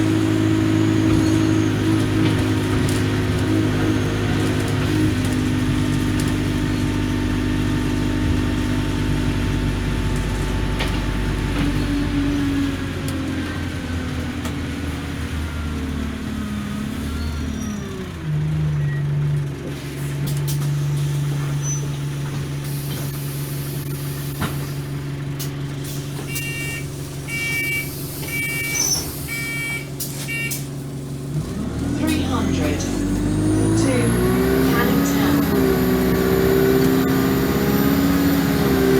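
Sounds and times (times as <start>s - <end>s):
bus engine humming: 0.0s - 38.9s
short electronic beeps: 26.3s - 30.6s.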